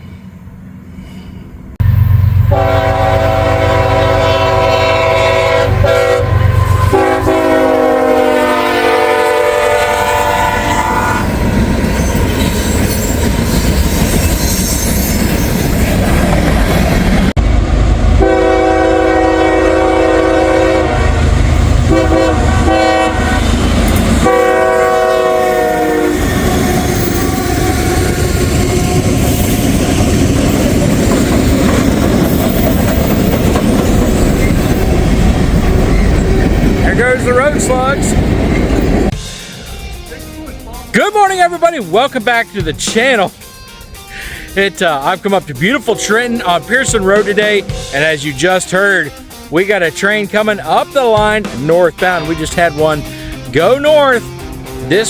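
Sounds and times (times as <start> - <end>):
train rumble: 0.0 - 55.0
locomotive air horn: 2.4 - 11.4, 18.2 - 30.0, 45.9 - 48.0
train wheels clickety-clack: 10.6 - 17.3, 23.5 - 24.4, 25.6 - 39.8.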